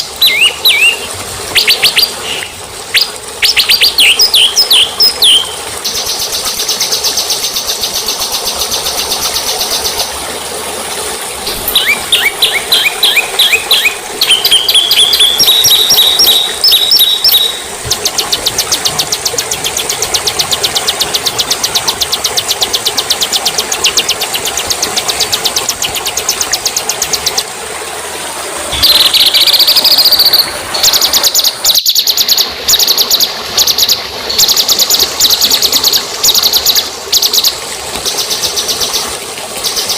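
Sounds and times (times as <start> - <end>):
songbird trills and whistles: 0.2 - 5.5, 11.6 - 17.7.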